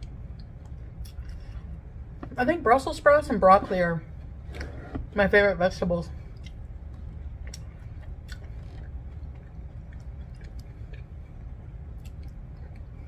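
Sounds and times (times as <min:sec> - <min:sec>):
low steady hum: 0:00.0 - 0:13.0
close chewing: 0:06.3 - 0:13.0.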